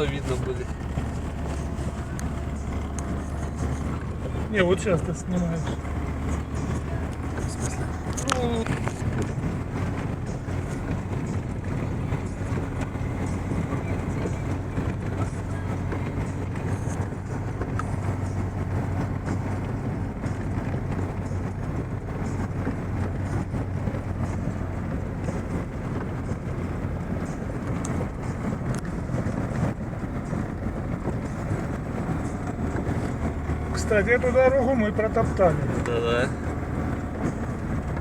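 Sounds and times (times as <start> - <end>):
car driving through snow: 0.0 - 38.0.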